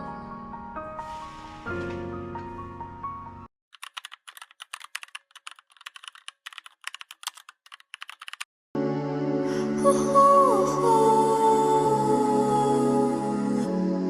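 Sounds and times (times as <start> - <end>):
background music: 0.0 - 3.5, 8.8 - 14.0
computer keyboard typing: 3.7 - 8.5.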